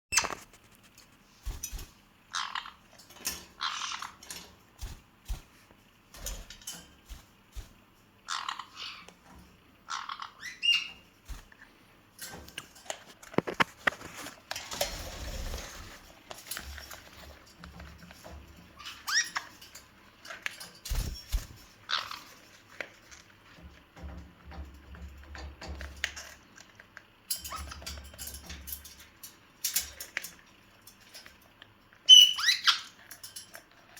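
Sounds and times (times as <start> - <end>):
parrot squawking and chirping: 2.3 - 2.9, 3.6 - 4.3, 8.2 - 9.1, 9.8 - 11.1, 21.8 - 22.3, 32.0 - 33.0
clicks knocks and rustling: 12.2 - 15.0.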